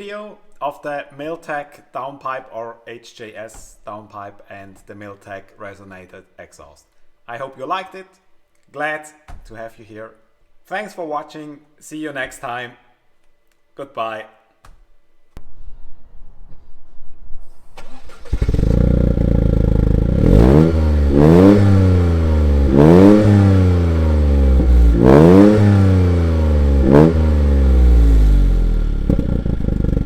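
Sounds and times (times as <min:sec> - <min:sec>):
car engine starting and idling: 0:17.4 - 0:30.0
engine throttle blips: 0:17.4 - 0:30.0.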